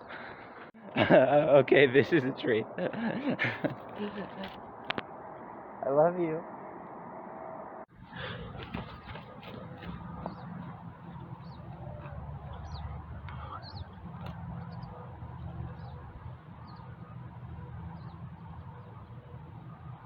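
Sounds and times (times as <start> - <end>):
steady low rumble: 2.6 - 20.0
small birds chirping: 8.1 - 19.8.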